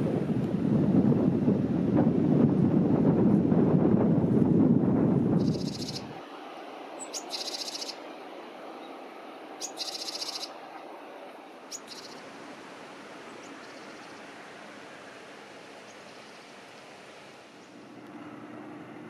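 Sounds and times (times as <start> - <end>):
wind buffeting microphone: 0.0 - 10.6
sharp bird chirps: 5.4 - 6.0, 7.0 - 8.0, 9.6 - 10.5, 11.7 - 12.2
high buzzy bird trills: 5.4 - 6.2, 6.9 - 12.3
faint steady hiss: 6.1 - 18.3.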